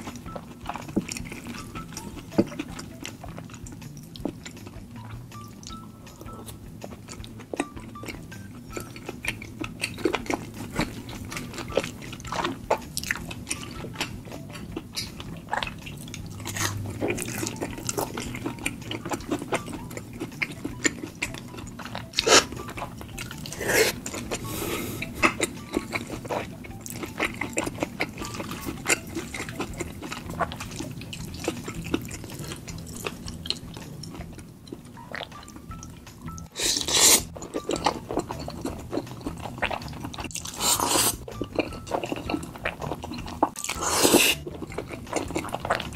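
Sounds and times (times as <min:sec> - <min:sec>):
person chewing: 0:00.0 - 0:45.9
wet slurps: 0:36.6 - 0:37.3, 0:40.4 - 0:41.2.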